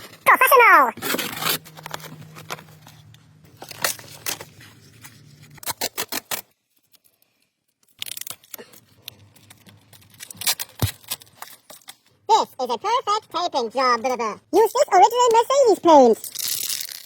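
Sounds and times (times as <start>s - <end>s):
masking tape pulled and torn: 1.0s - 2.1s, 5.1s - 7.1s, 7.8s - 12.0s, 16.3s - 17.0s.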